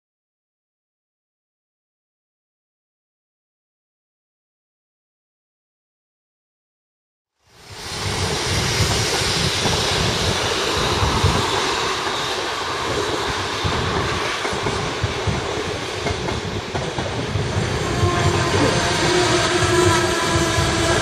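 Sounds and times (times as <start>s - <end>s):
freight train rumbling past: 7.5s - 21.0s
train wheels clattering on rails: 7.8s - 21.0s
steady squealing tone: 17.7s - 21.0s.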